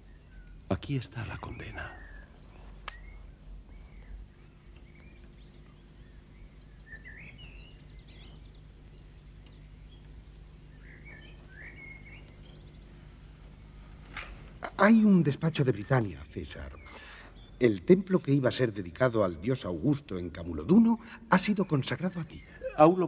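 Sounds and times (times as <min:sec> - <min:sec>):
faint bird chirps: 0:00.0 - 0:23.0
steady low hum: 0:00.0 - 0:23.0.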